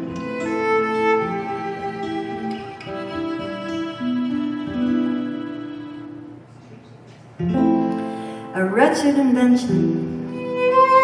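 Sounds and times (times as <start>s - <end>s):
violin playing long notes: 0.0s - 6.4s, 10.2s - 11.0s
acoustic guitar: 0.0s - 11.0s.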